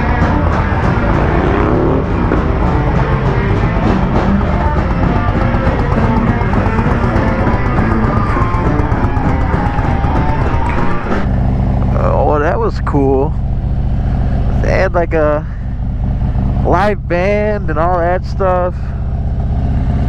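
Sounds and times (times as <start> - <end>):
electric guitar: 0.0 - 11.9
drum kit: 0.0 - 12.1.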